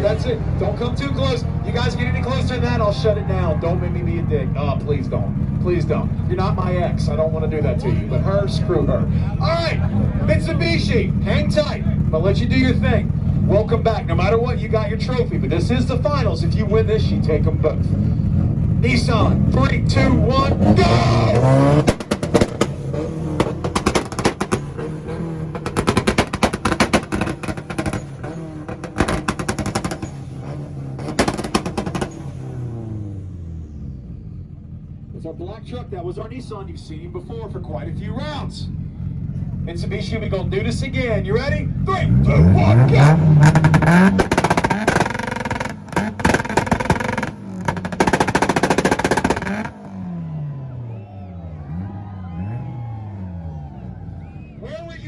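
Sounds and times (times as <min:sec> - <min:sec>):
truck engine running: 0:00.0 - 0:55.0
exhaust pops and bangs: 0:04.8 - 0:32.8, 0:39.3 - 0:50.2.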